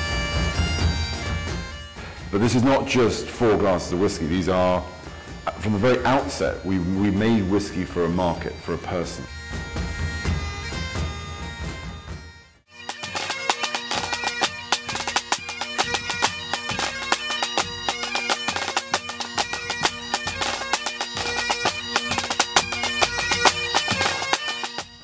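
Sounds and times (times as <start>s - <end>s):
bagpipe melody with drone: 0.0s - 25.0s
drum strikes: 5.4s - 6.4s, 9.4s - 25.0s.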